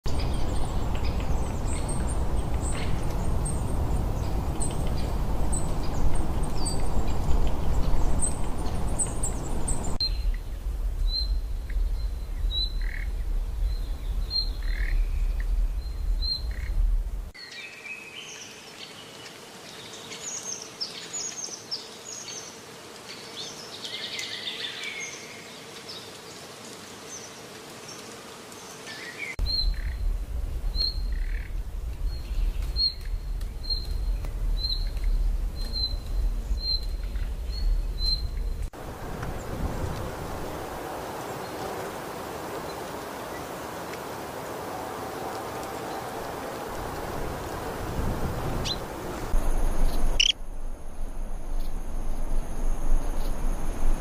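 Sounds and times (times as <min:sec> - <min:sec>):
birds chirping and calling: 0:00.1 - 0:10.4, 0:49.8 - 0:50.4
low background rumble: 0:00.1 - 0:17.4, 0:29.4 - 0:41.3.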